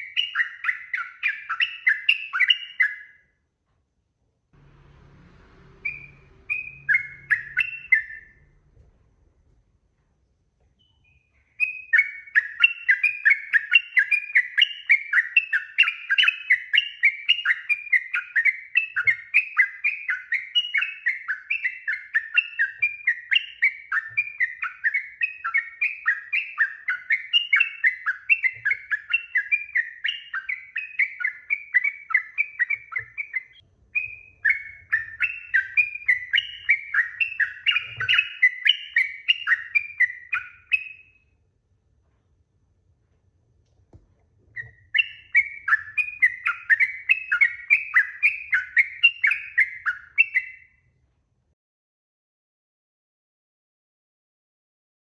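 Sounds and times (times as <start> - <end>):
bulbul singing chattering notes: 4.7 - 8.4.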